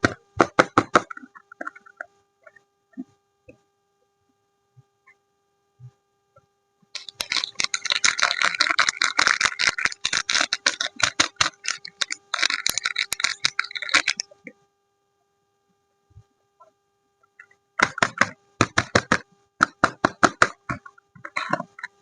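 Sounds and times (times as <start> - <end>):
packaging crinkling: 7.0 - 14.3.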